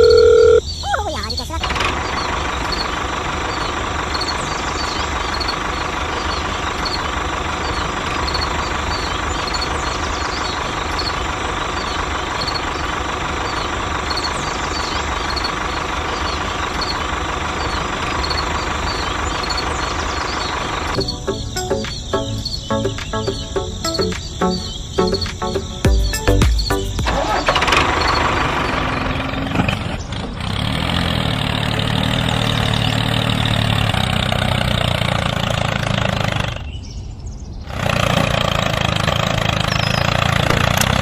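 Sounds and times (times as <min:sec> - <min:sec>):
music: 0:21.0 - 0:27.6.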